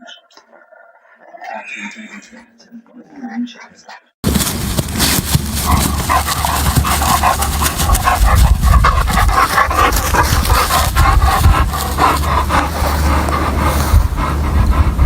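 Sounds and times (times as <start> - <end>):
steady low rumble: 4.2 - 15.0.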